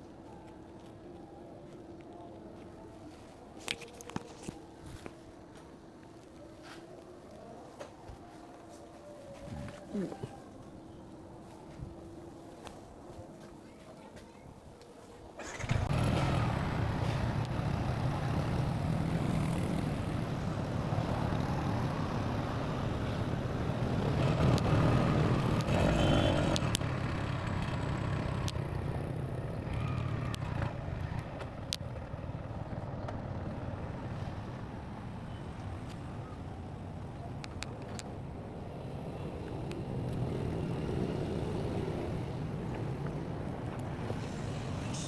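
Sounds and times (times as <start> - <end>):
road noise: 0.0 - 45.0
vehicle engine starting and running: 15.4 - 22.9.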